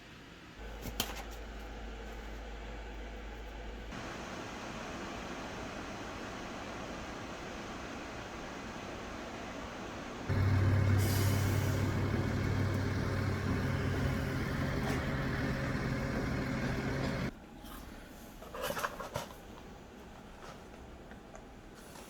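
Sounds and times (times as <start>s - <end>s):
low machine hum: 10.3s - 17.3s.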